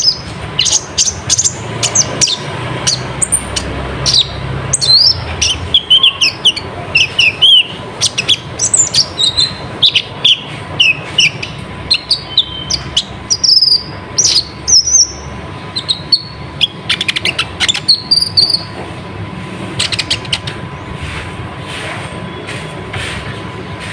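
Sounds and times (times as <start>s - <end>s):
bird singing high chirps: 0.0s - 18.7s.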